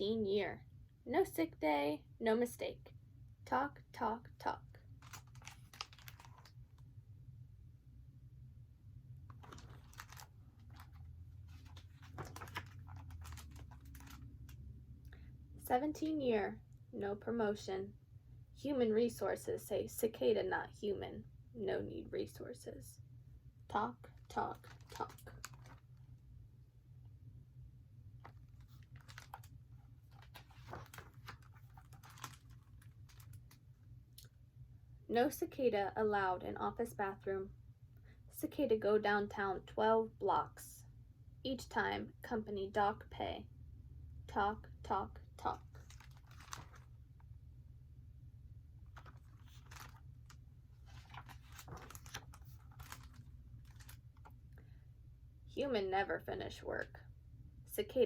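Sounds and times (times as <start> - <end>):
low steady hum: 0.0 - 58.0
soft rustle of handling: 4.9 - 6.9, 9.2 - 14.6, 24.2 - 26.2, 28.2 - 33.8, 45.6 - 47.3, 48.8 - 54.4.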